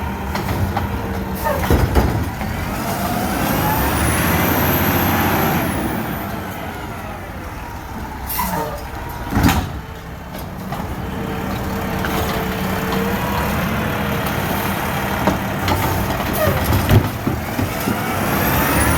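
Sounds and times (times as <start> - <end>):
garbage truck engine hum: 0.0 - 18.9
knocks and clanks: 0.3 - 2.7, 8.8 - 18.2.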